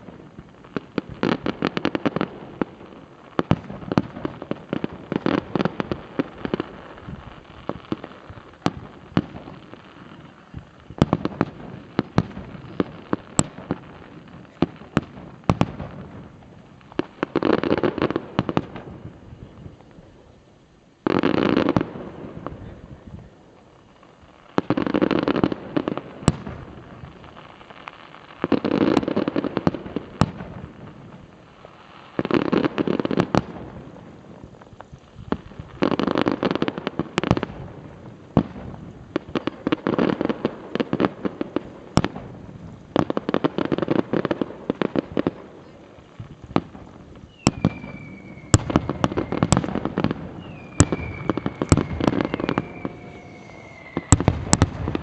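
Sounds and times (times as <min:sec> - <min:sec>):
fireworks bursting and crackling: 0:00.0 - 0:55.0
high whistle gliding down: 0:47.3 - 0:55.0.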